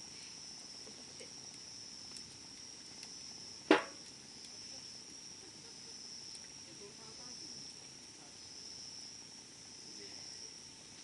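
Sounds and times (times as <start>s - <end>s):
fire popping: 0.0s - 5.4s, 6.0s - 6.7s
insects chirring: 0.0s - 11.0s
wood fire crackling: 0.0s - 11.0s.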